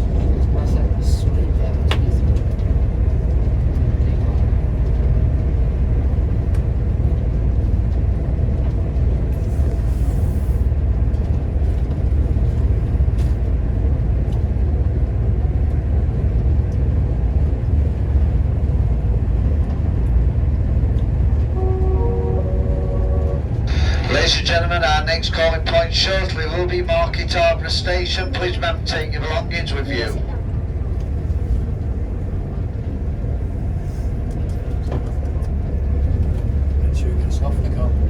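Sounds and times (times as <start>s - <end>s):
train rumbling inside carriage: 0.0s - 38.0s.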